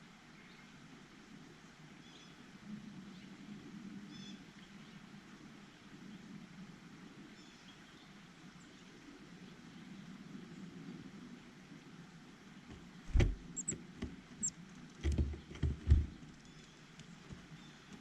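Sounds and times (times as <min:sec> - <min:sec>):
small birds chirping: 0:12.7 - 0:18.0
steady low rumble: 0:13.1 - 0:14.5.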